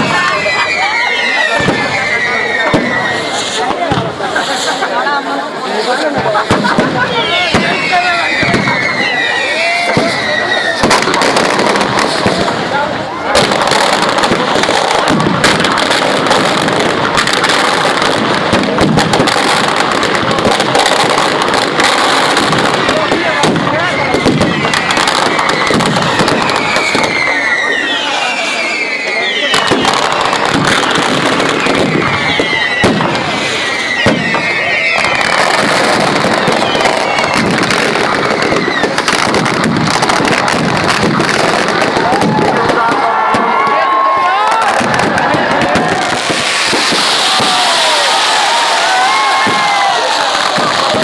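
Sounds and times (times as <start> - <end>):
firecrackers crackling and popping: 0.0 - 51.0.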